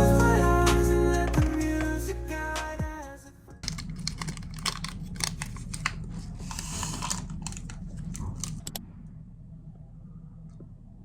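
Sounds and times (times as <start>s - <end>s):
low hum: 3.6s - 11.0s.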